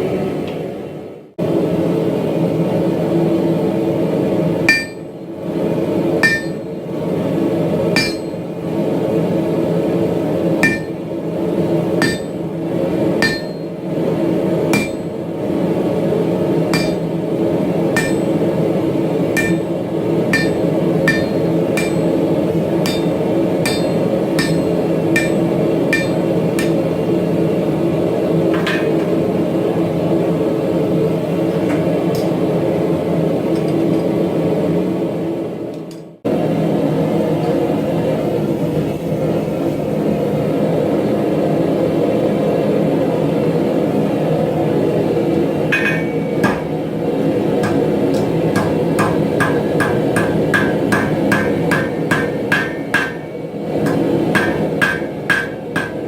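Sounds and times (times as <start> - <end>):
steady low hum: 0.0 - 56.0
hammer ringing on metal: 4.7 - 5.0, 6.2 - 6.6, 8.0 - 8.5, 10.6 - 11.0, 12.0 - 12.4, 13.2 - 13.7, 14.8 - 15.2, 16.7 - 17.1, 18.0 - 18.5, 19.4 - 22.2, 22.8 - 26.8, 45.7 - 46.8, 47.6 - 56.0.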